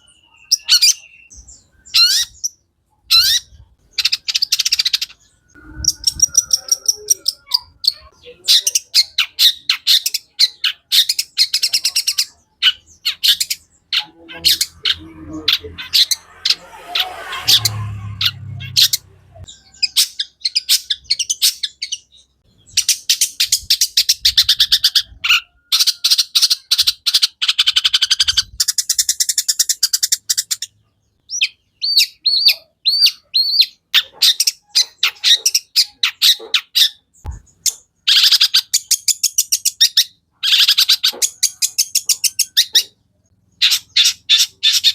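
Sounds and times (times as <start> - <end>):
shrike singing chattering trills: 0.0 - 33.9
low rumble: 5.2 - 7.8, 14.5 - 19.7.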